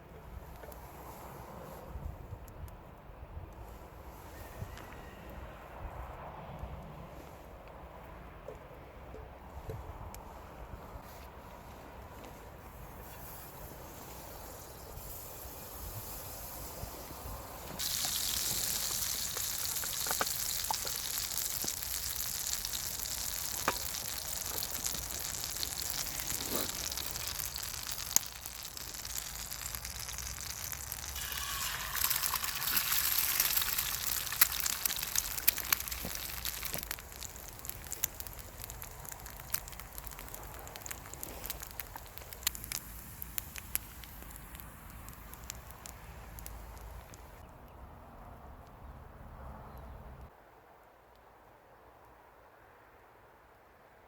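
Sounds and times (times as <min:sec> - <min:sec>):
food sizzling over campfire: 0:12.7 - 0:47.4
crackling pops: 0:17.7 - 0:47.4.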